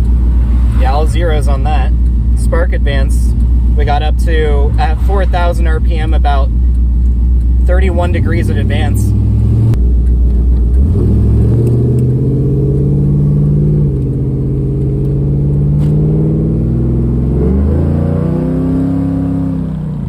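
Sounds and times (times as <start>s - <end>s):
car engine revving from inside cabin: 7.6s - 20.0s.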